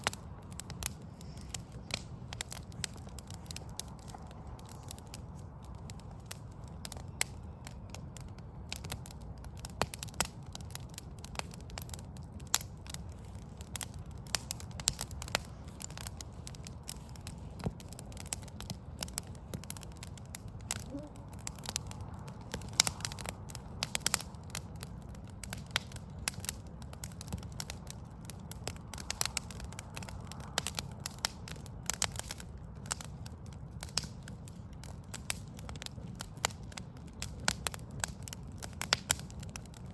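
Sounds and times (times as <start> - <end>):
wood fire crackling: 0.0 - 39.9
sharp pops and snaps: 12.5 - 33.1.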